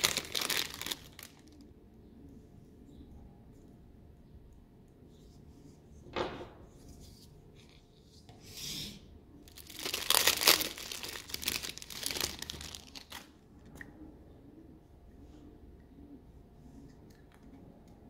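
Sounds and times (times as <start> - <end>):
packaging crinkling and tearing: 0.0 - 1.6, 9.5 - 13.4.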